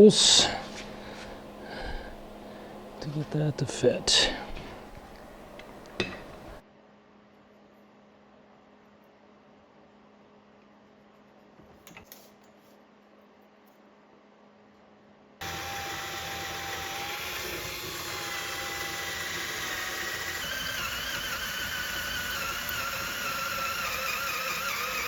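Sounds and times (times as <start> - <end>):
power tool whining: 15.4 - 25.0.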